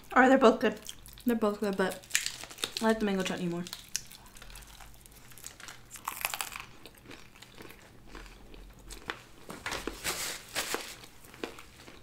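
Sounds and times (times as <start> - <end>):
biting crunchy pastry: 0.8 - 2.9, 3.7 - 9.2.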